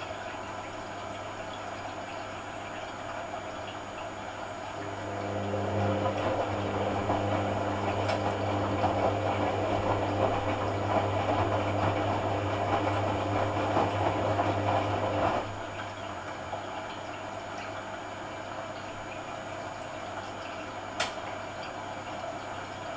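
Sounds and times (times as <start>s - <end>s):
steady electrical hum: 0.0s - 5.4s, 6.6s - 8.4s, 12.8s - 14.4s, 18.8s - 20.4s, 21.8s - 22.9s
water rushing through washing machine: 0.0s - 22.9s.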